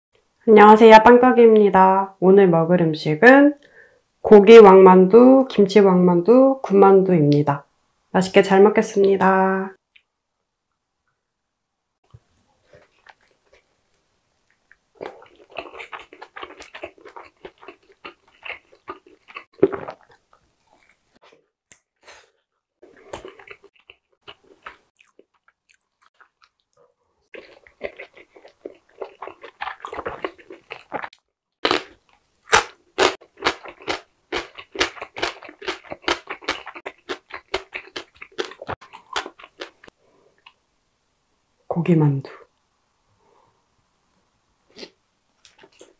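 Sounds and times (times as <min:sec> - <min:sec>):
chewing and mouth smacking: 0:12.1 - 0:21.0, 0:22.8 - 0:31.9, 0:32.5 - 0:40.6.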